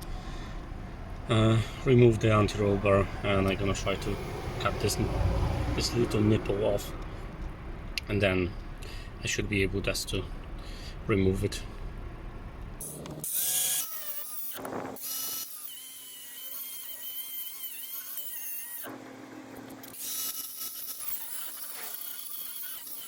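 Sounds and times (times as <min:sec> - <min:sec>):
angle grinder cutting metal: 0:12.8 - 0:18.9, 0:19.6 - 0:23.0.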